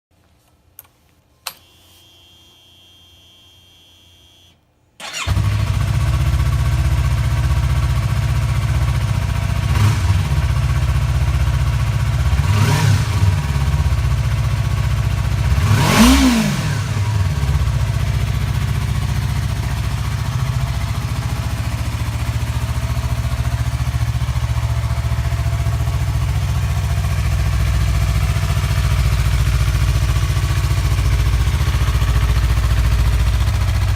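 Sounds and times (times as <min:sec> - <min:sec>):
click: 0:00.4 - 0:01.8
faint whine: 0:00.8 - 0:04.7
motorcycle engine starting and idling: 0:00.8 - 0:33.9
motorcycle engine revving: 0:05.0 - 0:33.9.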